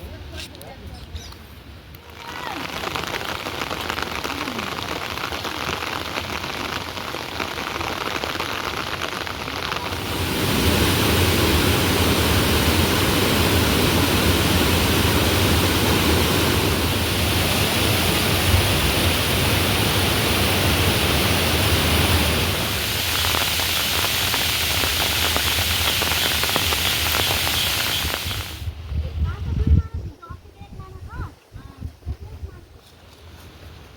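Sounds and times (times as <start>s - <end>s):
heavy rain: 2.1s - 28.7s.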